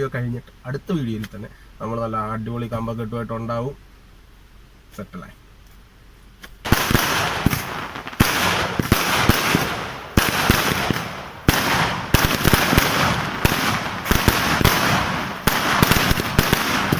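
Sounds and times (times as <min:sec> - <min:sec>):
firecracker bangs and crackling: 0:06.6 - 0:16.9
heavy firework booms: 0:06.6 - 0:16.9.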